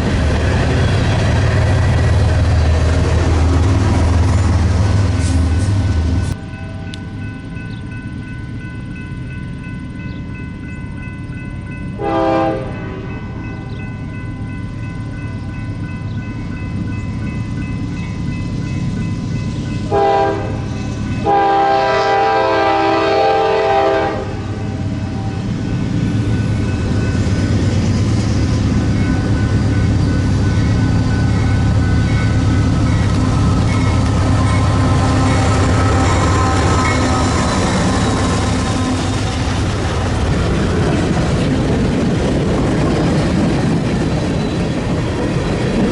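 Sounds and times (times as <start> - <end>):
train rumbling: 0.0 - 45.9
train horn blasts: 11.9 - 13.8, 19.9 - 25.4, 33.4 - 39.3.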